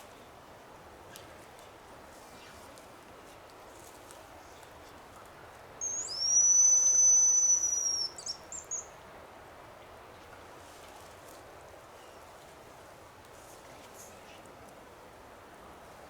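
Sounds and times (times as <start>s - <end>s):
bird whistle call: 5.8s - 8.9s.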